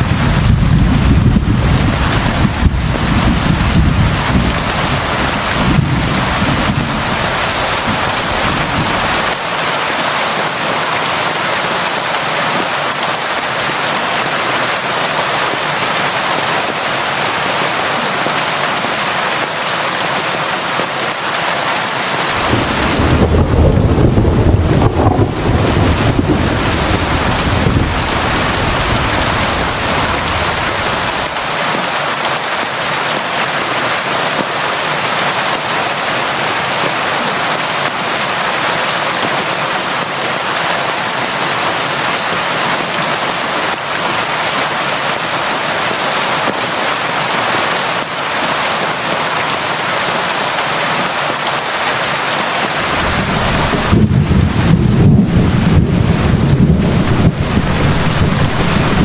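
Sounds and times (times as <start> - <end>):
heavy rain hissing: 0.0 - 59.0
deep low rumble: 22.4 - 31.3, 52.9 - 59.0.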